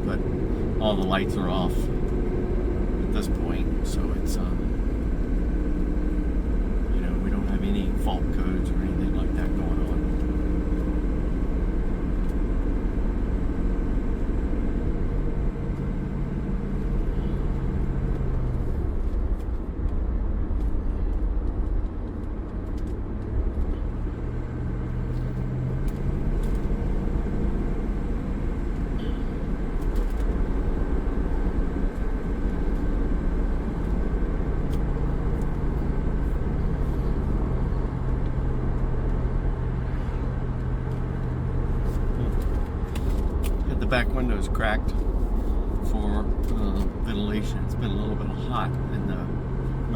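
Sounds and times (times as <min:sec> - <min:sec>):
car engine from inside cabin: 0:00.0 - 0:49.9
road noise: 0:00.0 - 0:49.9.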